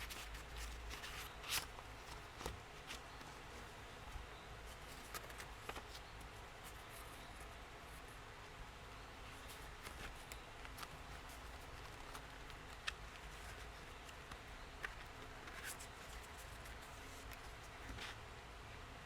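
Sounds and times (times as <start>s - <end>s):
low background hum: 0.0s - 19.0s
paper taps and rustles: 4.8s - 6.0s, 9.5s - 18.2s.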